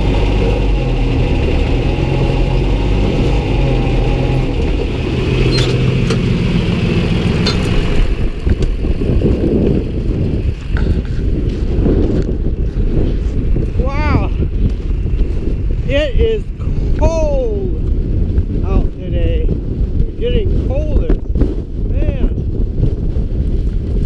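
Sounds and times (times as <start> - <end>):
tractor engine running: 0.0 - 16.3.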